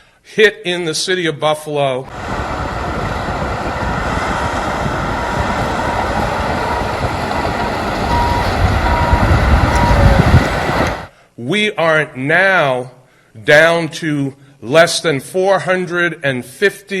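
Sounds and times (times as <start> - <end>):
heavy truck engine rumbling: 2.1 - 11.1
reversing alarm beeping: 5.1 - 11.1.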